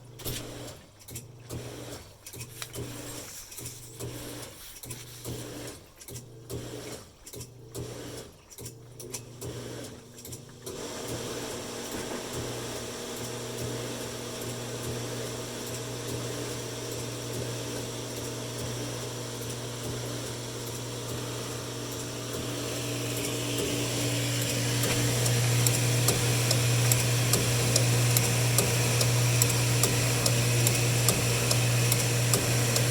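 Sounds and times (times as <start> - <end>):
pump motor humming: 0.0 - 32.9
regular ticks: 24.4 - 32.9.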